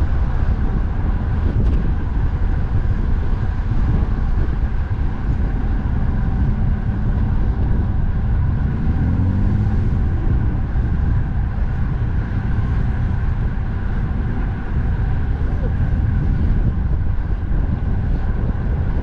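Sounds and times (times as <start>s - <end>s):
road traffic passing: 0.0s - 19.0s
vehicle engine: 0.0s - 19.0s
wind on microphone: 0.0s - 19.0s.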